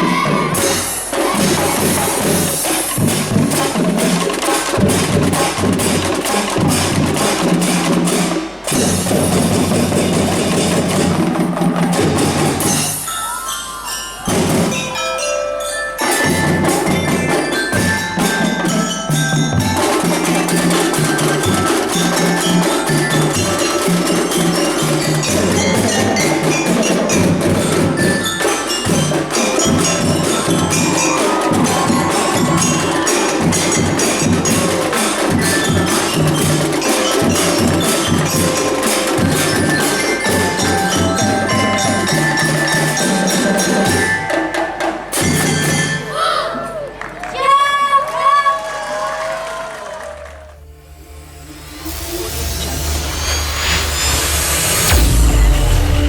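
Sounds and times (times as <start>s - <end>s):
drums and rapid percussion: 0.0s - 47.5s, 49.0s - 56.0s
glockenspiel bell melody: 12.4s - 46.3s.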